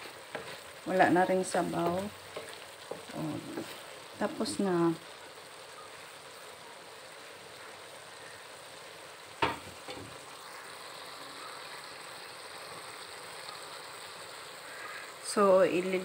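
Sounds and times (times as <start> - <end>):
vegetables sizzling in a wok: 0.0 - 16.0.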